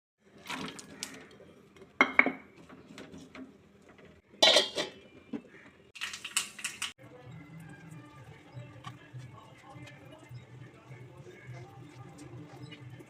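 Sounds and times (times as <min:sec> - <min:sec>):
utensils clattering against pans: 0:02.0 - 0:07.0.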